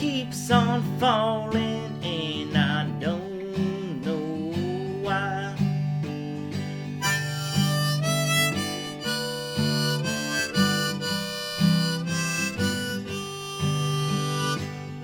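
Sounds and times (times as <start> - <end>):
strummed acoustic guitar: 0.0 - 15.0
harmonica playing: 7.0 - 15.0.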